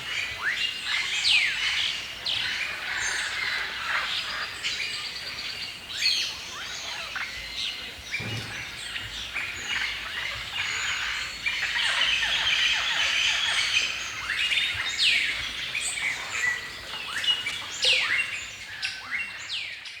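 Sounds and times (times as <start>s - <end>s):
songbirds singing and chirping: 0.0s - 20.0s
low thump: 8.2s - 9.8s.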